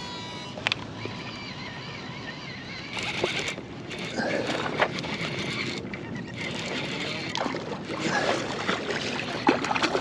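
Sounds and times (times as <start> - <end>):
water splashing around kayak: 6.7 - 10.0.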